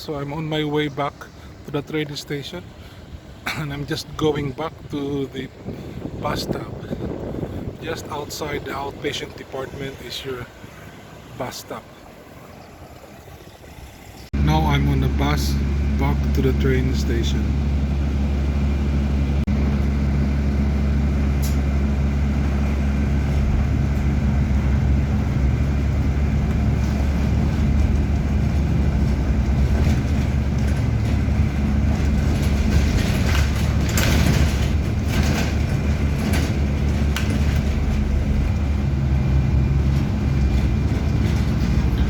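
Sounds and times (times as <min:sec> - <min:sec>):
bus engine humming: 0:00.0 - 0:42.0
short knocks or rattles: 0:26.3 - 0:38.6.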